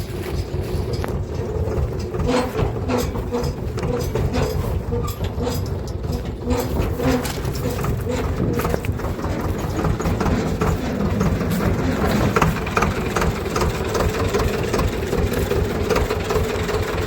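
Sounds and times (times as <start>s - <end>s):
machine rattling over rocky road: 0.0s - 17.0s
tractor diesel engine running: 0.0s - 17.0s.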